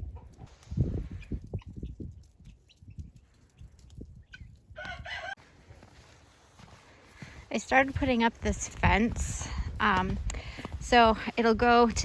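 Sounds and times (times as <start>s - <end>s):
chicken call: 4.8s - 5.4s
soft low thumps: 6.7s - 12.0s.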